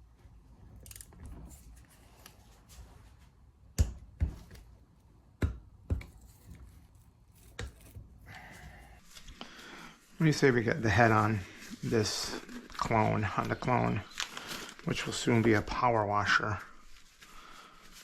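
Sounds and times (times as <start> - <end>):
tools handled on a workbench: 0.8 - 2.8, 5.9 - 9.3.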